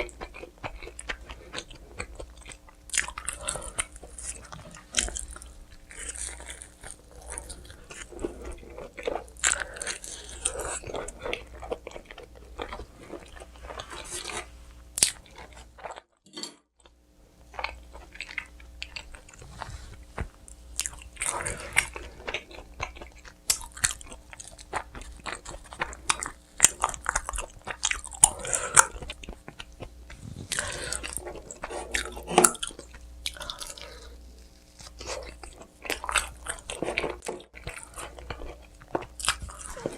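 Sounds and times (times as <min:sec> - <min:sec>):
wet chewing: 0:00.0 - 0:16.1, 0:17.5 - 0:39.9.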